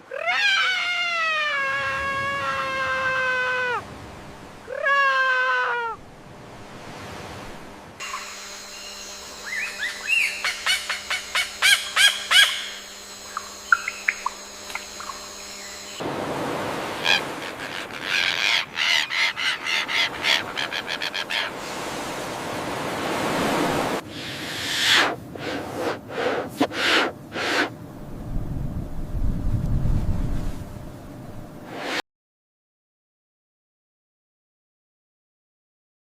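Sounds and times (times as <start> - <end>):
steady electrical hum: 6.0 - 16.9, 27.1 - 31.7
birds chirping and clicking: 9.5 - 15.9.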